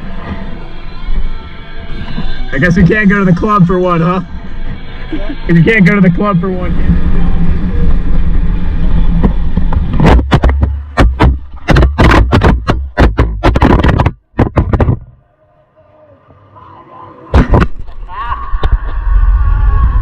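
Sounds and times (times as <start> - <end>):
dirt bike rumble: 4.2 - 15.2
sharp knocks and rattles: 9.2 - 15.1.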